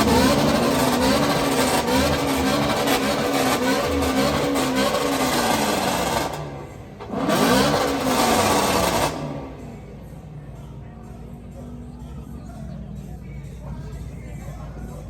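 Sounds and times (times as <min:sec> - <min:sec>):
car engine revving: 0:00.0 - 0:10.3.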